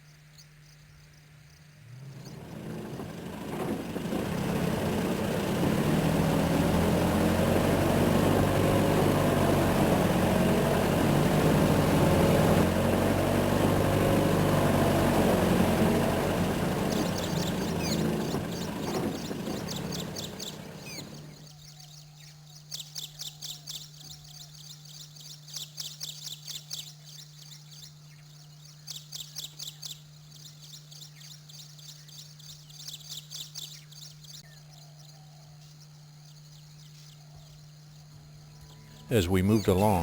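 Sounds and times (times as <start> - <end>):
vehicle engine running: 1.8 - 21.4.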